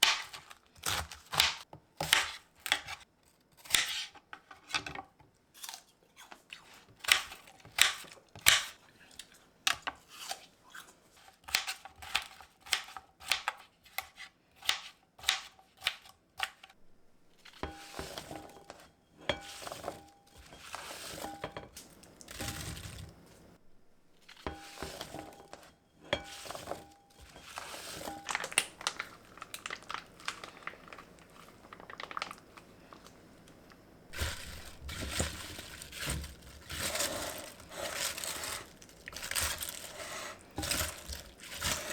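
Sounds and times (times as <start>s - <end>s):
packaging rustling and crinkling: 19.6s - 23.6s, 26.4s - 33.3s, 34.1s - 41.9s.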